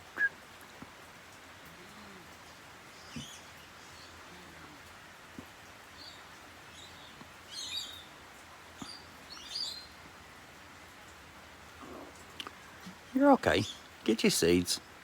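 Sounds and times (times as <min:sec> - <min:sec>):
faint clicks: 0:11.8 - 0:13.0.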